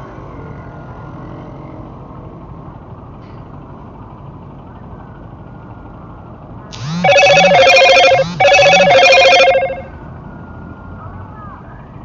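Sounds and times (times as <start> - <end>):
telephone ringtone: 6.8 - 10.0.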